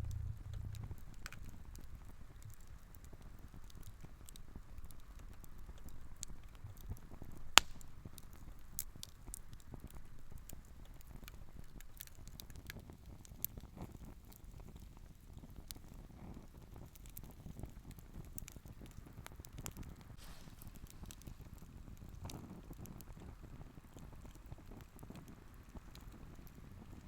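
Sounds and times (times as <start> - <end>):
campfire crackling: 0.0 - 27.0
loud sharp pop: 7.6 - 7.9, 20.2 - 21.3.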